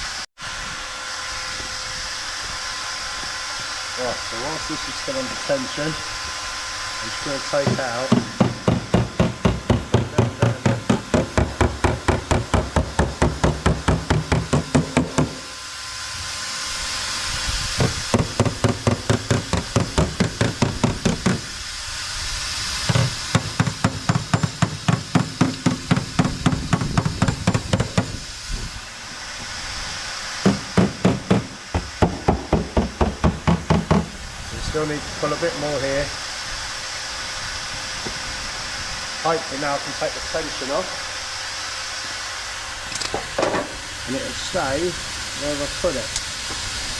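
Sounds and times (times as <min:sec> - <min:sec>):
hammer tapping on steel panel: 0:07.6 - 0:15.4.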